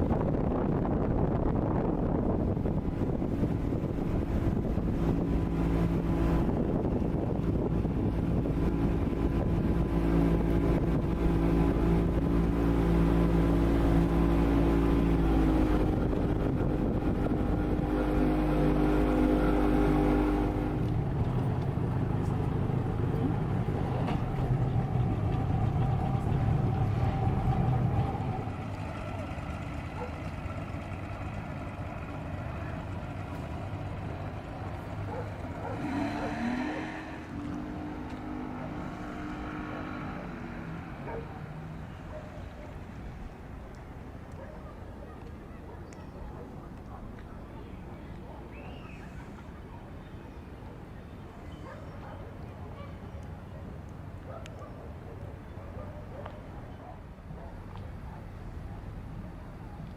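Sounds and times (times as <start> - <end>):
engine hum: 0.0 - 59.9
engine revving: 2.6 - 42.1.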